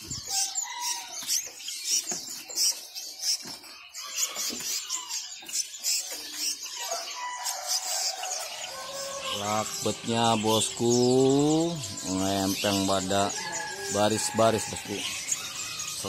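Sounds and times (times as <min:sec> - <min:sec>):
caged birds chirping: 0:00.0 - 0:16.0.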